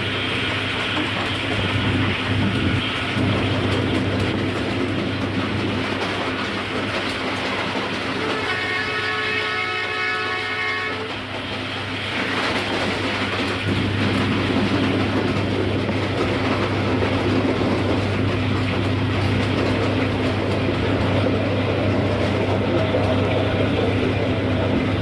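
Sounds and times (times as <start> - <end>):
passing train rumble and clatter: 0.0 - 25.0
locomotive horn: 8.2 - 11.3.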